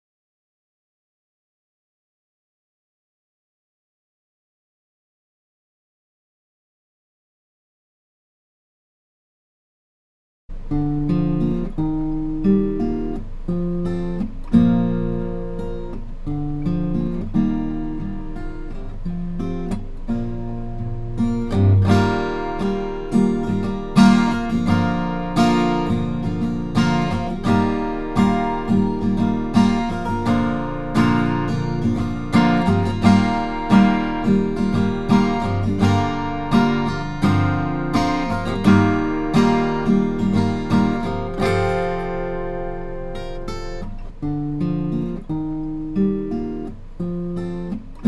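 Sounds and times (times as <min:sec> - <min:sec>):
acoustic guitar strumming: 0:10.5 - 0:48.0.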